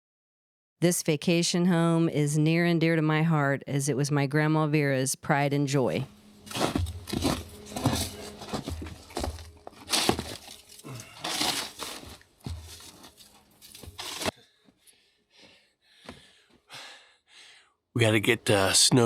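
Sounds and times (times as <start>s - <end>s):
crunching in snow: 6.4s - 14.3s.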